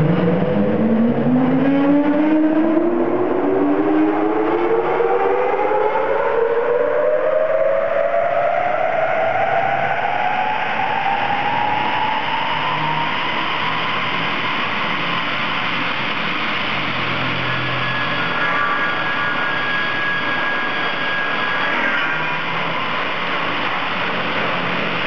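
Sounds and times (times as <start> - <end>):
circular saw machine running: 10.5 - 25.0.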